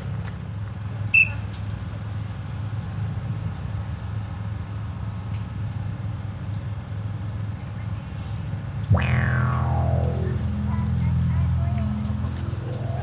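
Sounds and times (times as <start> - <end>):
sharp high-pitched chirp: 8.9 - 13.0
steady low hum: 8.9 - 13.0.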